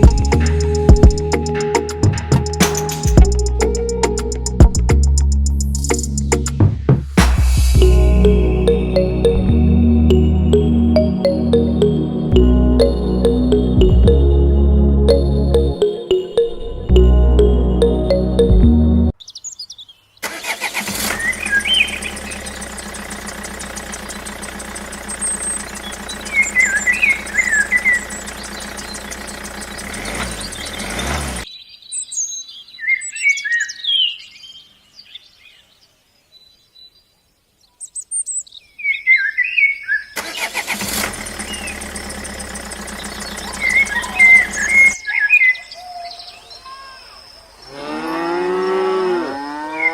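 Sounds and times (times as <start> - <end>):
birds chirping: 21.1 - 40.6, 41.2 - 49.9.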